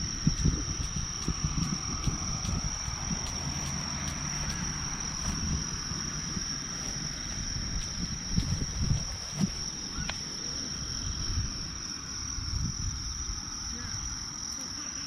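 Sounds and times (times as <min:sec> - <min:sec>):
low bumps: 0:00.0 - 0:13.4
crickets trilling: 0:00.0 - 0:15.0.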